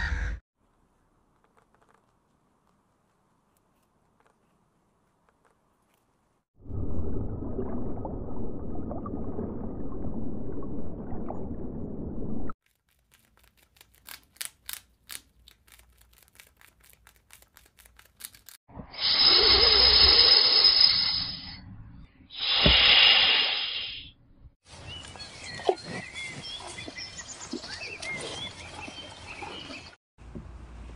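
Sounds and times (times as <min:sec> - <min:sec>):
squirrel clicking: 0:12.6 - 0:18.6
snake hissing: 0:19.0 - 0:21.4, 0:22.3 - 0:24.1.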